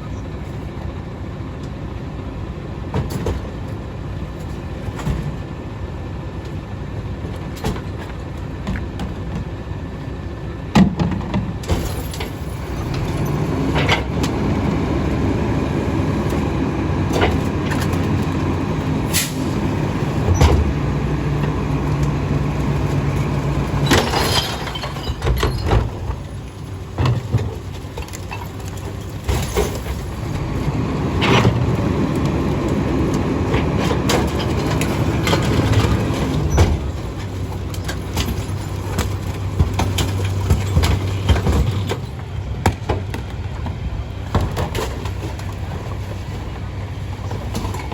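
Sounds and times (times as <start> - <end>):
garbage truck engine and packer: 0.0 - 47.9
bins and rubbish banging: 10.8 - 47.9.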